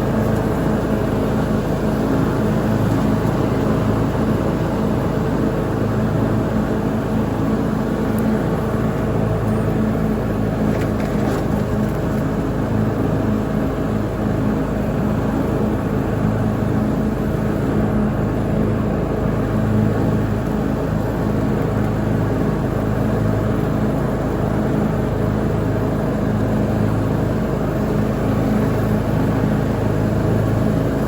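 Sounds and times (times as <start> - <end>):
lawn mower engine running: 0.0 - 31.0.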